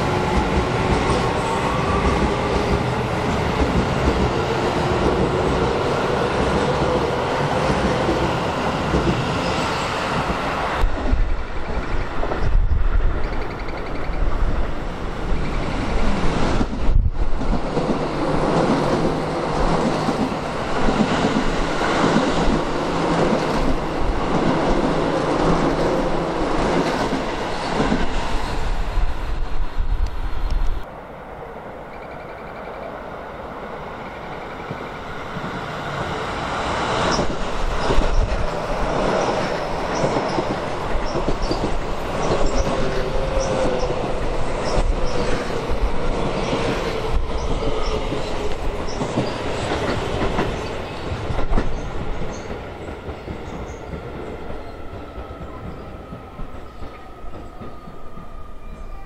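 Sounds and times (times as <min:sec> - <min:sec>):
electric train passing: 0:00.0 - 0:59.0
train wheels clacking over rail joints: 0:36.9 - 0:44.0, 0:44.6 - 0:54.3.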